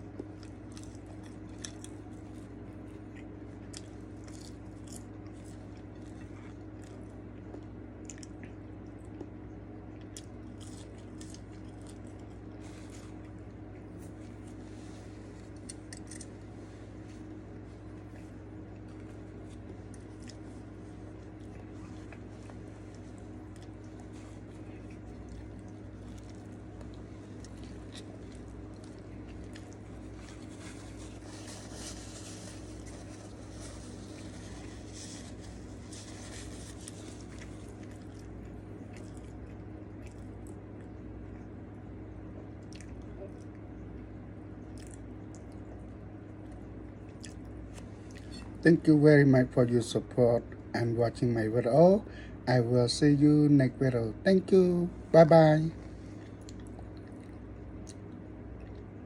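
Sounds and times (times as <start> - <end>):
person chewing food: 0.0 - 41.6, 42.2 - 48.6, 55.8 - 59.0
low hum: 0.0 - 59.0
food wrapper crackling: 18.8 - 39.6.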